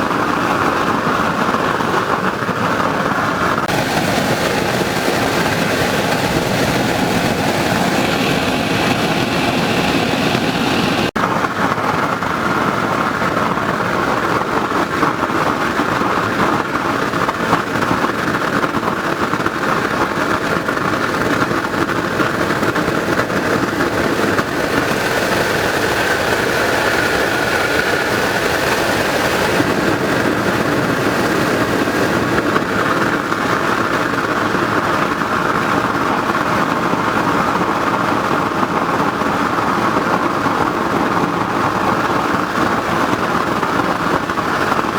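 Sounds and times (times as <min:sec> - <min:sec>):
oil burner roaring: 0:03.5 - 0:11.2, 0:20.3 - 0:34.9.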